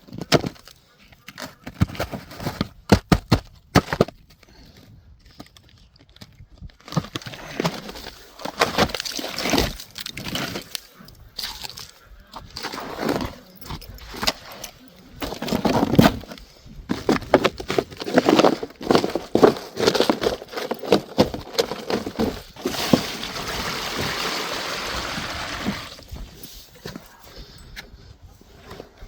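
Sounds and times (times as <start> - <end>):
buckets knocking and clattering: 0.0 - 4.2, 11.6 - 26.0
water pouring into pool: 23.3 - 26.0.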